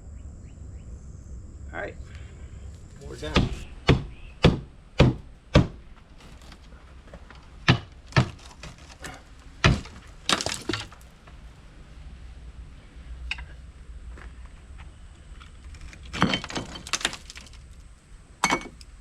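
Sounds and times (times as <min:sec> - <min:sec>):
hard strikes on debris: 0:03.2 - 0:05.8, 0:07.6 - 0:11.0, 0:16.1 - 0:17.6
breaking glass and wood clatter: 0:08.1 - 0:11.0, 0:16.1 - 0:17.7.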